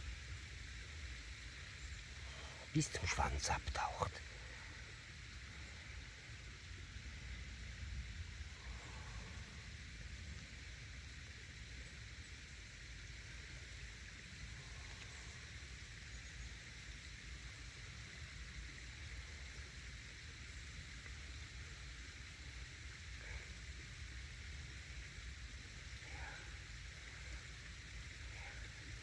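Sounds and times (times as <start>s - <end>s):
even hiss: 0.0s - 29.0s.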